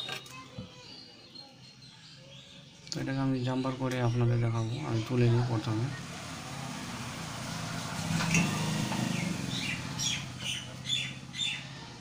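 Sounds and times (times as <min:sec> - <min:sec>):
small bird chirping: 0:08.2 - 0:11.9.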